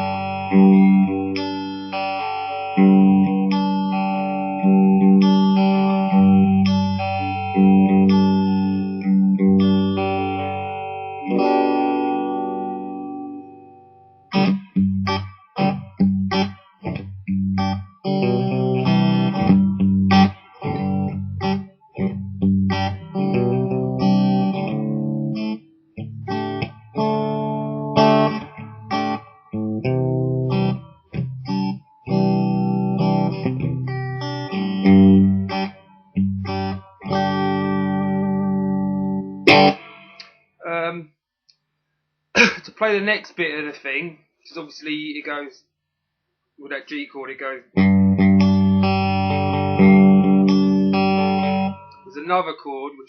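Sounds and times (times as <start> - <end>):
guitar picking pattern: 0.0 - 40.4, 47.6 - 53.0
guitar strings damped: 4.5 - 40.3.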